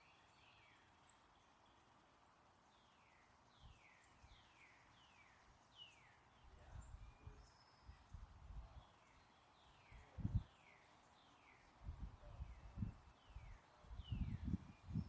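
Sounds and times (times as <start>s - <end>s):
wind buffeting microphone: 14.0s - 15.0s.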